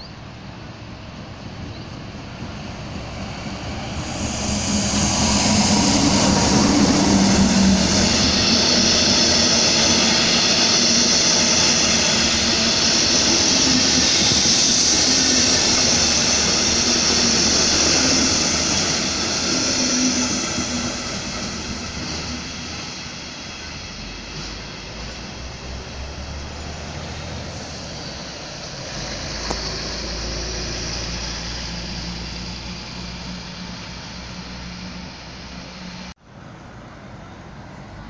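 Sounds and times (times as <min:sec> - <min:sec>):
locomotive engine: 0:00.0 - 0:38.0
wheels rushing on rail: 0:00.0 - 0:38.0.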